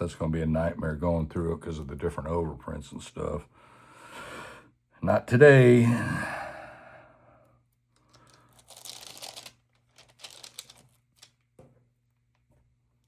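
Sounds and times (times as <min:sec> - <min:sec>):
paper pages rustling: 0:08.1 - 0:11.5.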